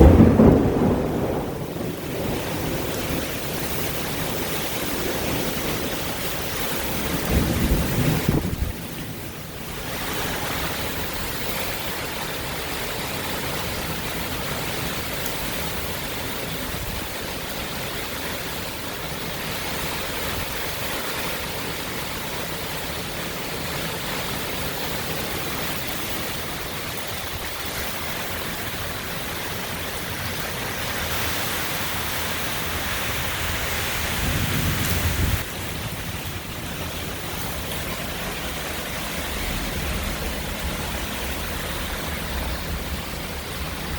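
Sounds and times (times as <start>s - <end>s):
wind gust with deep rumble: 0.0s - 11.9s, 32.0s - 43.9s
heavy rain: 0.0s - 43.9s
high wind rushing: 32.5s - 37.7s.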